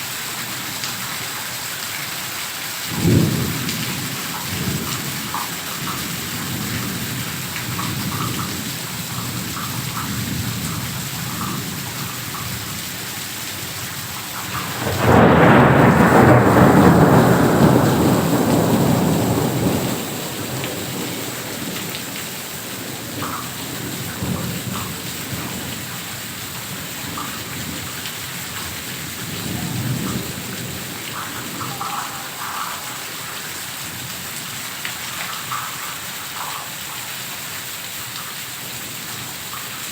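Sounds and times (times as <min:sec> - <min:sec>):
heavy rain: 0:00.0 - 0:39.9
thunder clap rumbling: 0:02.9 - 0:12.8, 0:14.0 - 0:34.0.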